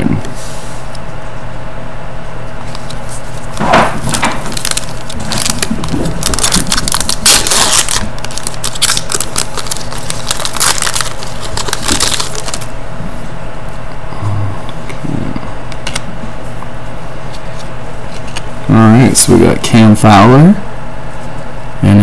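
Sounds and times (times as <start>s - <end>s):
card packaging crinkling: 2.6s - 12.7s.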